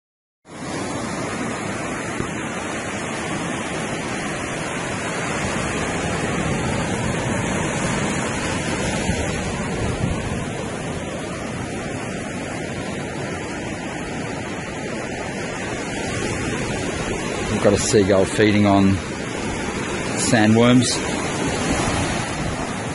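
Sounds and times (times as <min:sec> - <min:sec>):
surf on a beach: 0:00.4 - 0:22.9
wind buffeting microphone: 0:01.2 - 0:22.9.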